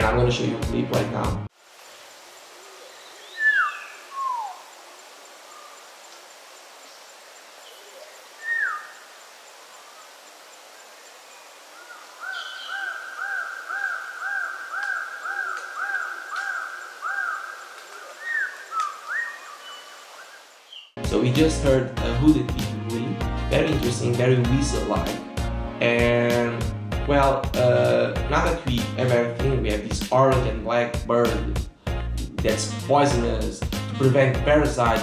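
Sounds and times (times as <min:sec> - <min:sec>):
faint background hiss: 0:01.1 - 0:21.0
bird whistling calls: 0:02.8 - 0:04.8, 0:07.6 - 0:09.0, 0:11.8 - 0:20.9.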